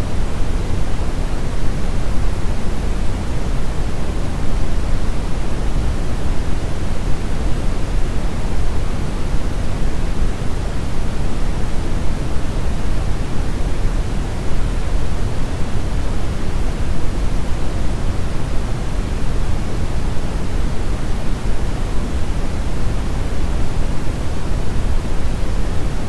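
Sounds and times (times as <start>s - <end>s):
brown noise rumbling hiss: 0.0s - 26.0s.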